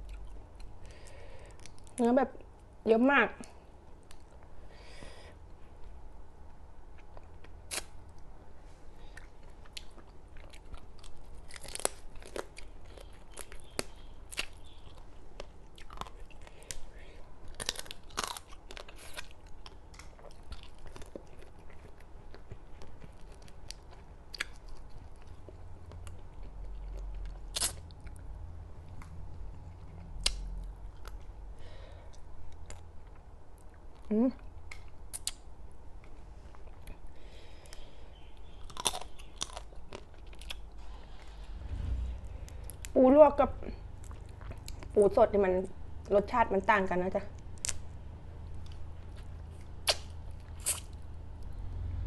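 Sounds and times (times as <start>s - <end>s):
wet chewing with crunches: 9.0s - 31.4s, 32.1s - 41.8s, 43.7s - 46.2s, 47.3s - 51.6s.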